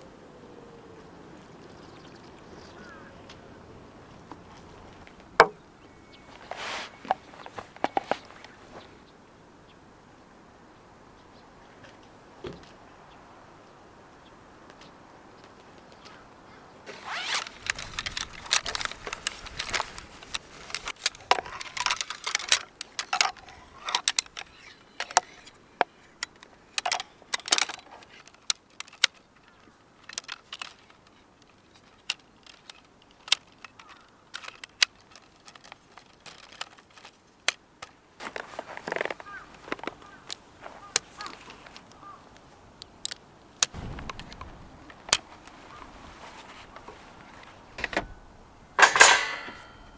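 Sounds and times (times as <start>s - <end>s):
rustling: 2.8s - 9.1s, 16.8s - 49.9s
small hard objects clicking: 17.4s - 38.0s.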